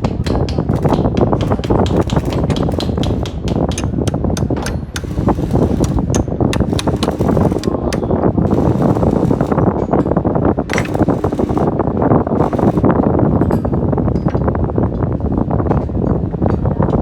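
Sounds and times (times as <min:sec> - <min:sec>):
hand tools clicking and tapping: 0:00.0 - 0:13.6
steady rushing noise: 0:00.0 - 0:13.6.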